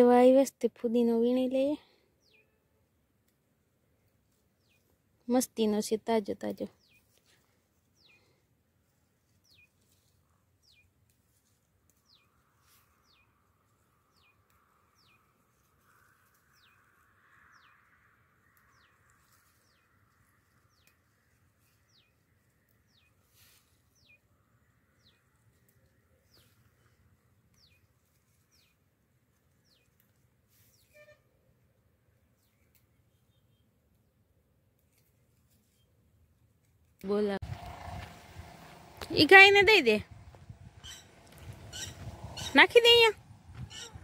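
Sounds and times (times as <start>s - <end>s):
faint bird calling: 40.8s - 44.0s.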